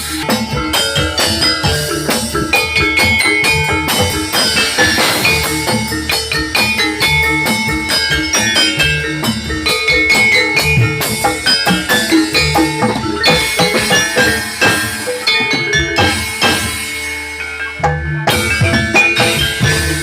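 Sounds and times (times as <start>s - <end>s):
drums: 0.0s - 20.0s
metallophones ringing fast: 0.0s - 20.0s.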